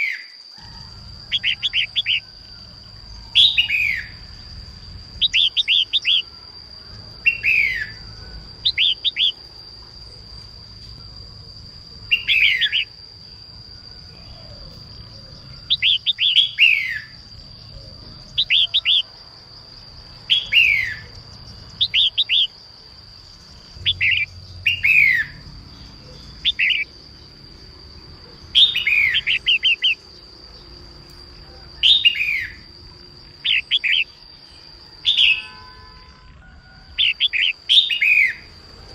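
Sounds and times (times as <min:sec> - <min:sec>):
bulbul calling in chirpy phrases: 0:26.4 - 0:26.9.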